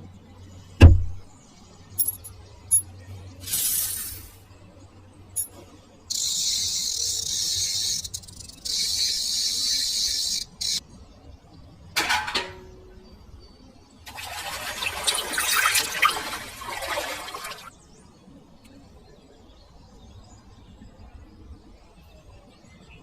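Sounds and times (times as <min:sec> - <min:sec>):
heavy thump: 0:00.8 - 0:01.2.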